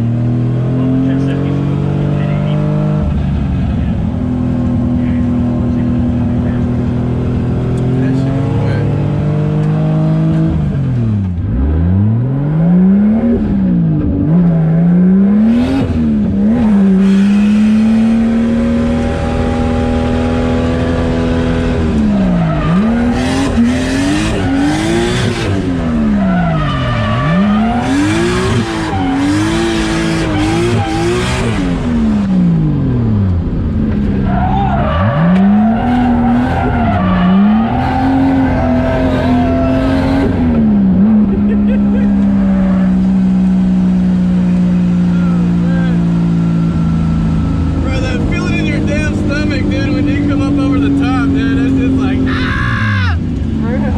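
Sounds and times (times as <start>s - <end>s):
car engine revving hard: 0.0s - 52.6s
tires squealing: 15.4s - 31.9s, 34.0s - 43.4s, 45.1s - 53.9s.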